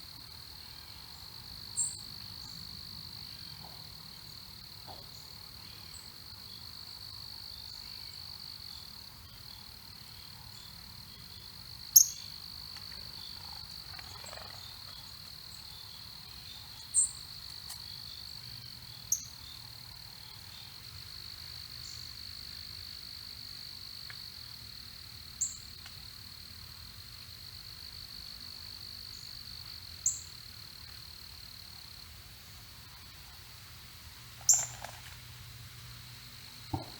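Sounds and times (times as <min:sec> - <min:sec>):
bird chirps: 0:12.0 - 0:12.4, 0:34.5 - 0:34.8.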